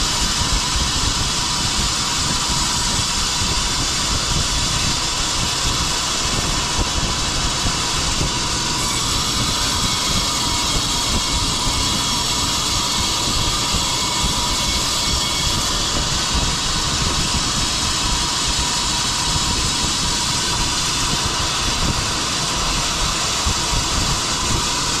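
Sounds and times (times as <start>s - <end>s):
sawmill machinery running: 0.0s - 25.0s.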